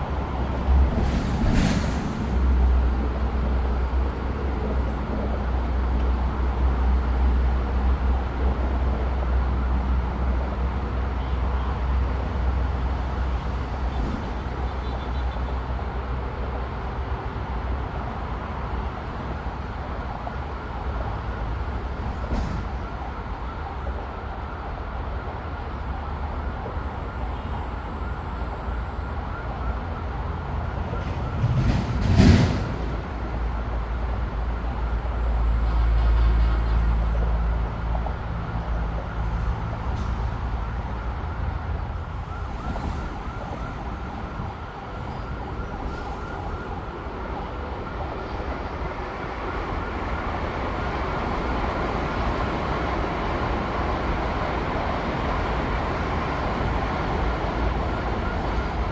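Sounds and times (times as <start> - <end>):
vehicle noise: 0.0 - 58.9
faint wavering siren: 38.3 - 52.5.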